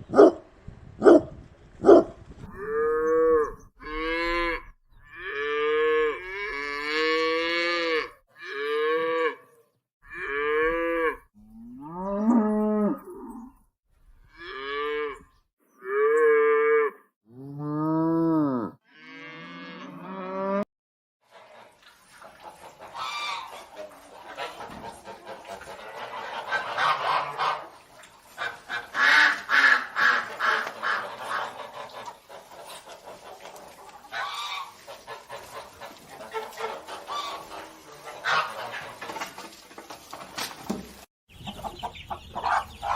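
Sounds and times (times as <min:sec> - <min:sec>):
dog barking: 0:00.1 - 0:00.4, 0:01.0 - 0:02.2
cattle mooing: 0:02.5 - 0:09.4, 0:15.8 - 0:20.6.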